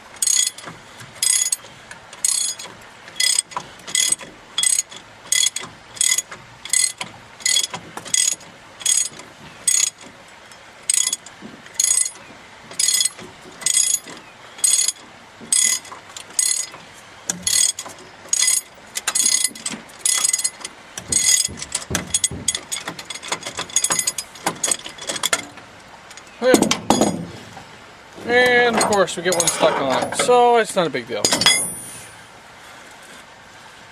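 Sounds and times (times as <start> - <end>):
ratchet wrench clicking: 0.2 - 0.6, 1.2 - 1.6, 2.2 - 9.1, 9.7 - 10.0, 10.9 - 12.2, 12.8 - 15.0, 17.3 - 17.8.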